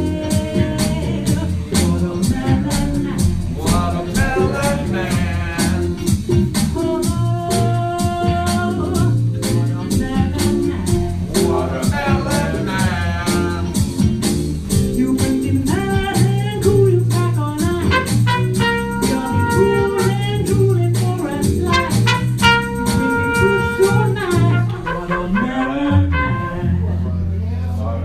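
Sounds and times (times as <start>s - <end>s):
drums: 0.0s - 26.9s
bass: 0.0s - 28.0s
horn melody: 17.7s - 27.0s.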